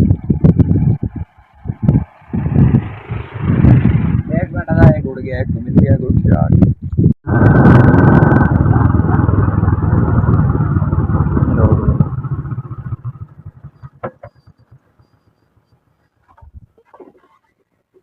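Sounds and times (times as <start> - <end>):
small engine running: 0.5 - 4.3, 7.3 - 16.2.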